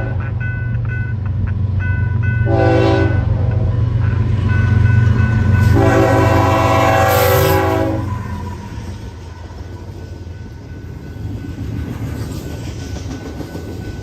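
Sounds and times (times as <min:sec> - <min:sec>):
locomotive horn blasts: 0:00.0 - 0:00.3, 0:02.4 - 0:03.8, 0:05.6 - 0:08.2
train rumbling past: 0:00.0 - 0:14.0.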